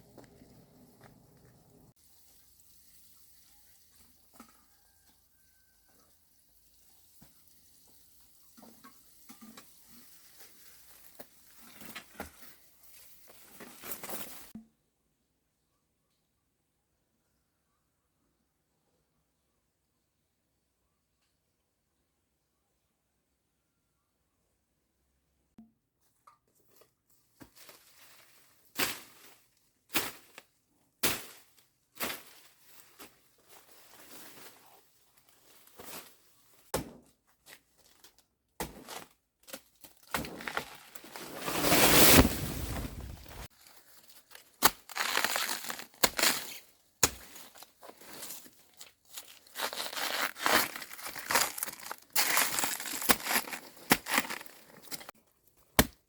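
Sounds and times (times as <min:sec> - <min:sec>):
dry vegetation crunching and rustling: 0:27.4 - 0:36.7, 0:39.6 - 0:55.1.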